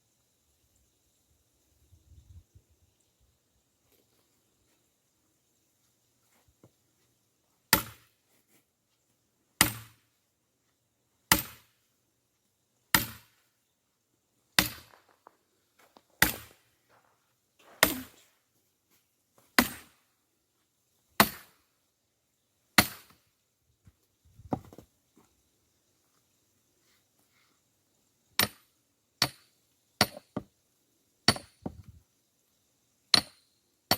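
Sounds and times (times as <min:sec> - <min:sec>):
axe chopping logs: 0:07.7 - 0:08.2, 0:09.6 - 0:10.1, 0:11.3 - 0:11.8, 0:12.9 - 0:13.4, 0:14.6 - 0:15.3, 0:16.2 - 0:16.7, 0:17.6 - 0:18.2, 0:19.5 - 0:20.0, 0:21.2 - 0:21.6, 0:22.8 - 0:23.2, 0:28.4 - 0:30.5, 0:31.3 - 0:31.8, 0:33.1 - 0:33.4.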